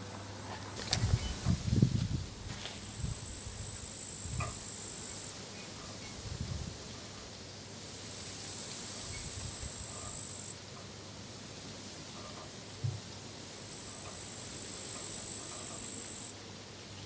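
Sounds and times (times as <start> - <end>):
wind rumbling on microphone: 0.8 - 4.6, 6.0 - 7.1, 9.0 - 10.1
crickets trilling: 2.8 - 5.4, 8.0 - 10.6, 13.6 - 16.4.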